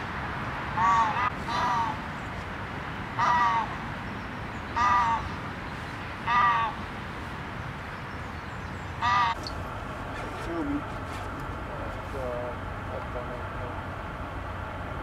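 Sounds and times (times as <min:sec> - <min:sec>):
bird calling: 0:00.8 - 0:02.5, 0:03.2 - 0:06.9, 0:07.9 - 0:13.8.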